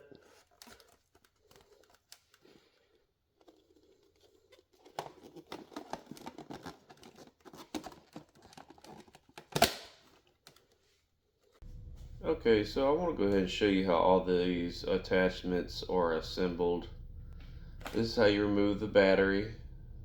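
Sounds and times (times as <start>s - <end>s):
plastic parts clicking and rattling: 0.0s - 11.6s.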